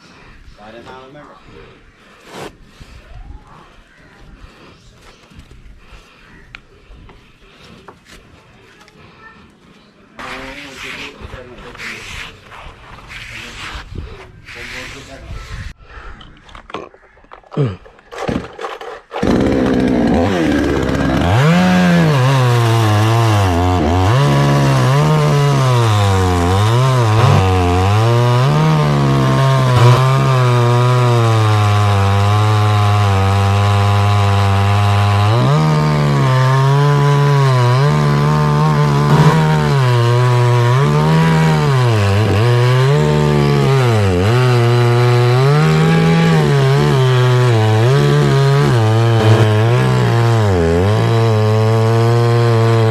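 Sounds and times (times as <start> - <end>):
chainsaw cutting wood: 18.1 - 52.9.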